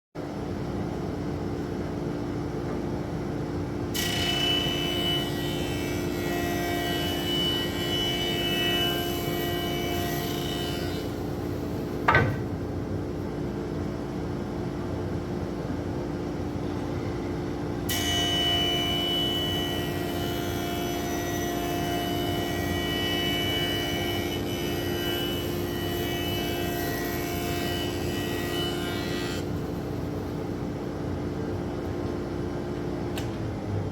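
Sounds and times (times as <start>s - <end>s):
whining wood cutting noise: 4.0s - 12.3s, 17.9s - 30.0s
woodworking machine running: 17.9s - 30.2s.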